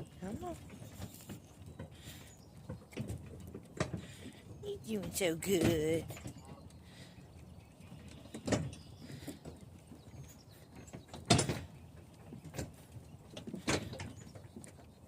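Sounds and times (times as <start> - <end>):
knocks and clunks: 8.0 - 14.9.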